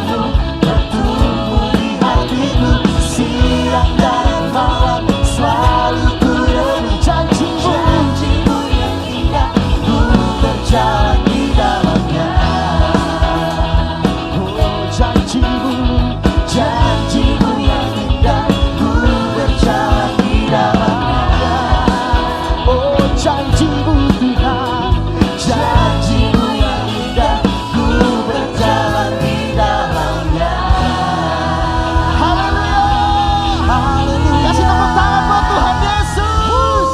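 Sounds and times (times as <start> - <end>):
steady drum beat: 0.0 - 36.9
voices singing: 0.0 - 36.9
worship band playing: 0.0 - 36.9.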